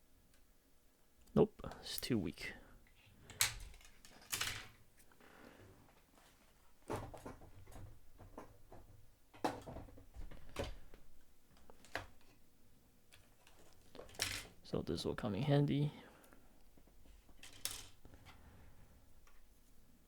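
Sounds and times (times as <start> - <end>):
objects clicking on a table: 17.3 - 18.0.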